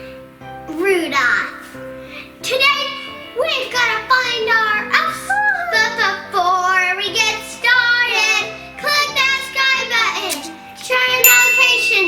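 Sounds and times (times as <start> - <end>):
musical backing: 0.0 - 12.0
child singing: 2.4 - 12.0.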